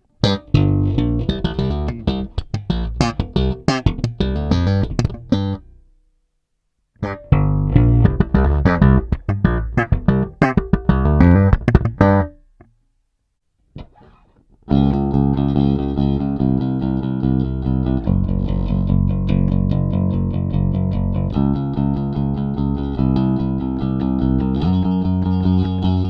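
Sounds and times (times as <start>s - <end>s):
slapped electric bass: 0.2s - 5.8s, 7.0s - 12.4s, 14.7s - 26.0s
picked electric bass notes: 0.2s - 5.9s, 7.0s - 12.7s, 13.8s - 26.0s.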